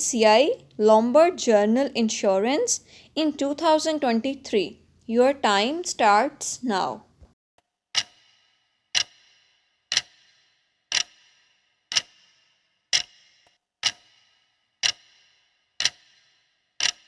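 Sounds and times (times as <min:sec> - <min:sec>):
clock ticking: 0:08.0 - 0:08.2, 0:08.9 - 0:09.3, 0:09.9 - 0:12.3, 0:12.9 - 0:17.0.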